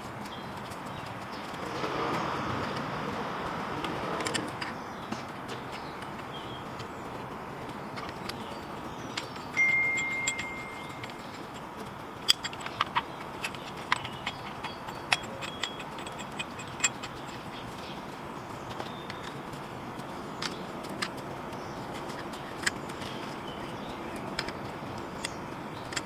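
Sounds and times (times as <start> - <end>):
sharp ringing clicks: 8.0 - 26.0
metallic clinks and taps: 9.1 - 18.1
brief high ring: 9.6 - 11.0.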